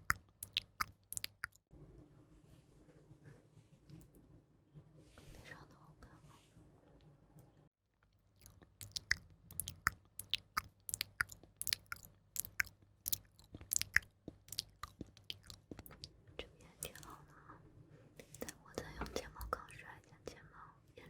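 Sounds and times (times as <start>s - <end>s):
wet mouth clicks and smacks: 0.0s - 1.6s, 8.4s - 16.1s.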